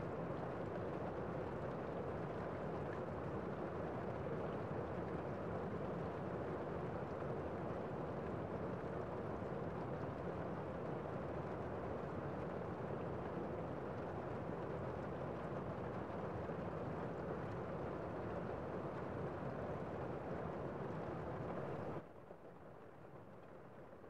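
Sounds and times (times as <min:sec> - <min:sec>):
rain on a window: 0:00.0 - 0:24.0.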